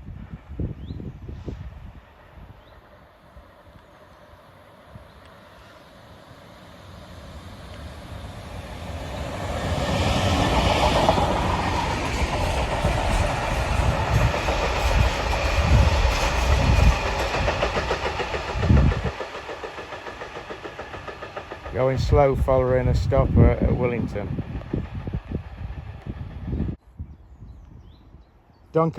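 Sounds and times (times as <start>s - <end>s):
freight train rumble: 0.0s - 26.8s.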